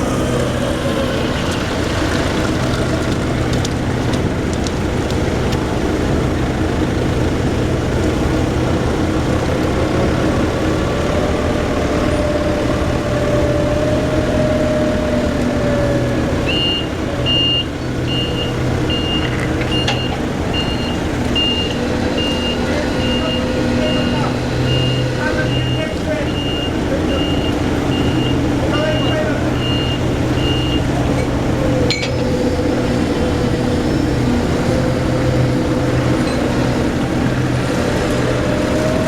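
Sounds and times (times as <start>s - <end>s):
heavy machinery engines running: 0.0s - 39.0s
rising whine: 0.0s - 39.0s
reversing alarm beeping: 16.4s - 31.3s.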